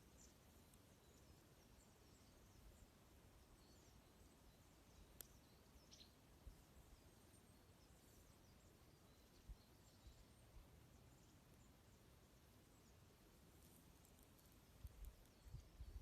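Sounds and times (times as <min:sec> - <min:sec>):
small birds chirping: 0:00.0 - 0:16.0
wood fire crackle: 0:13.6 - 0:15.5.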